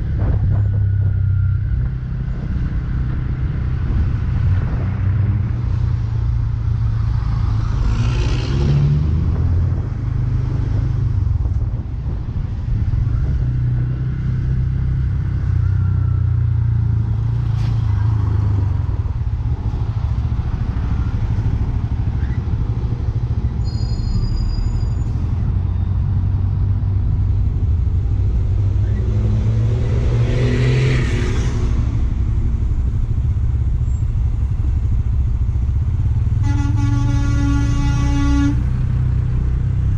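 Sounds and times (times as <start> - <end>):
motorcycle engine droning: 31.0 - 39.9.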